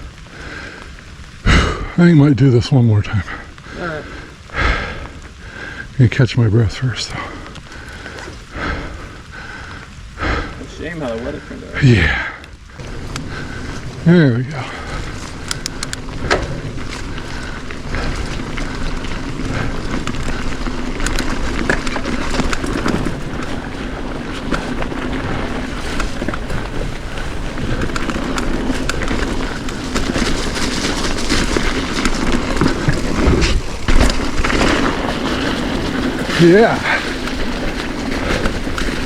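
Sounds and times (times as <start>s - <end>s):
tyre noise on wet trail: 0.0s - 39.0s
wind buffeting microphone: 12.5s - 39.0s
clicks and rattles: 15.1s - 19.2s.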